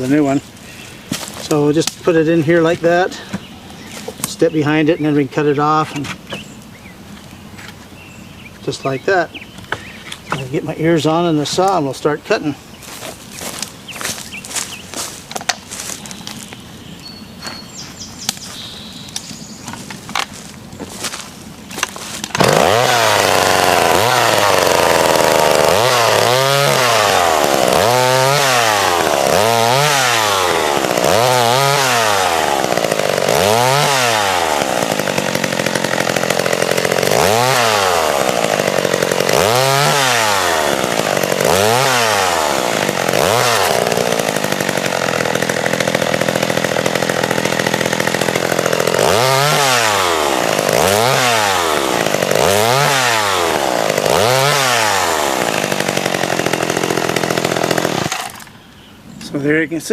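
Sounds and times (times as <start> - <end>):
chainsaw revving: 12.8 - 16.0, 21.8 - 58.6.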